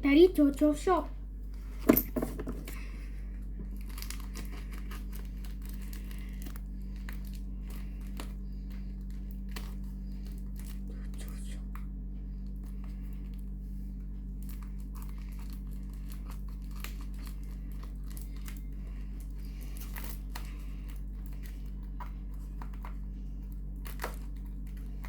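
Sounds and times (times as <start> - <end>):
steady low hum: 0.0 - 25.0
packaging crinkling and tearing: 3.6 - 11.1, 14.4 - 22.0, 22.6 - 25.0.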